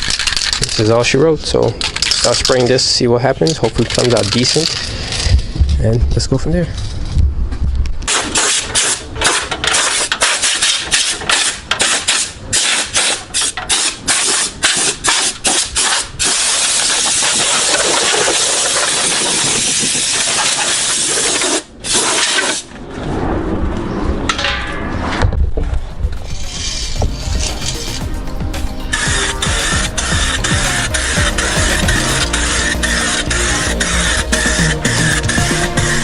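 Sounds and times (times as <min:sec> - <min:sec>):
aerosol spray can hissing: 0:28.9 - 0:36.0.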